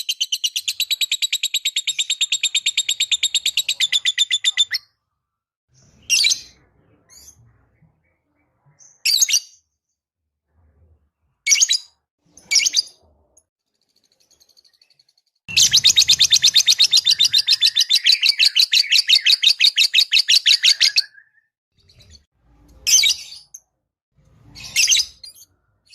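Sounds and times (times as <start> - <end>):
bird chirping: 0.0 - 5.0, 11.5 - 23.6
bird chattering trill: 15.5 - 21.0.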